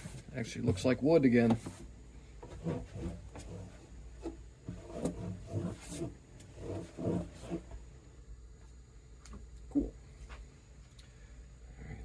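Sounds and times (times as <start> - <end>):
cloth squeaking on wood: 2.4 - 7.8.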